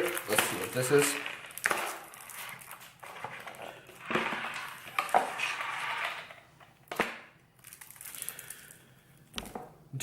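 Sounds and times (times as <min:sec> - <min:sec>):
packaging rustling and crinkling: 0:00.0 - 0:06.4, 0:07.6 - 0:08.8.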